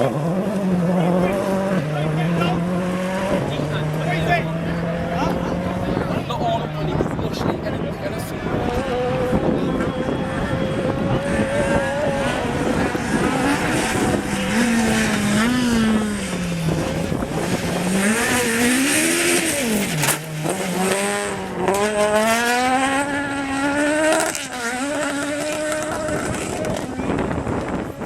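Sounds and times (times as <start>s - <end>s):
rally car engine running hard: 0.0s - 28.0s.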